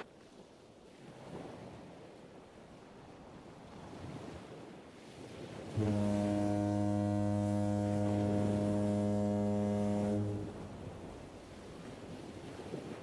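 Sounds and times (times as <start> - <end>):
water ambience: 0.0 - 13.0
deep ship's horn blast: 5.7 - 11.8.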